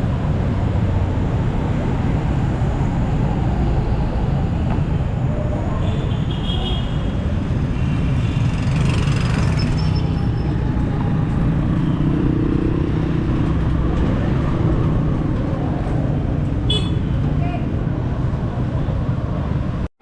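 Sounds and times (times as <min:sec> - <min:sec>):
vehicle engine and road rumble: 0:00.0 - 0:19.9.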